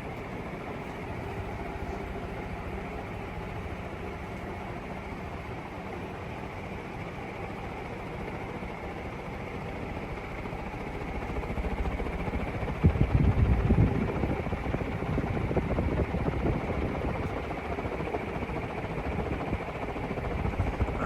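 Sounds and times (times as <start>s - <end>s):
ceiling fan rushing air: 0.0s - 21.0s
wind buffeting microphone: 11.1s - 21.0s.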